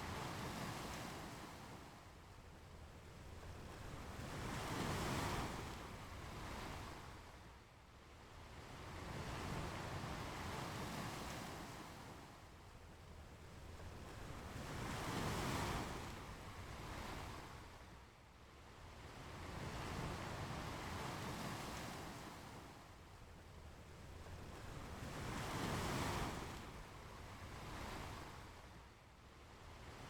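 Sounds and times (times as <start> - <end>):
ocean waves breaking on a beach: 19.0 - 22.9, 24.0 - 28.8.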